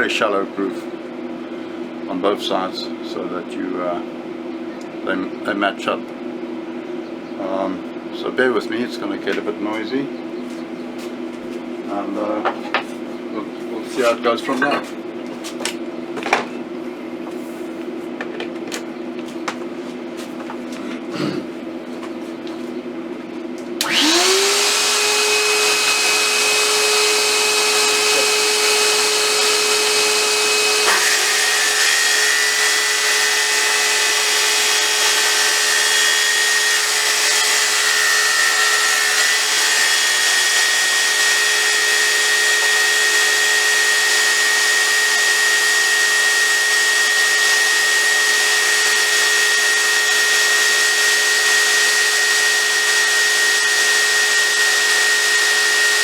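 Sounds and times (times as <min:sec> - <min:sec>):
circular saw cutting wood: 0:23.8 - 0:56.0.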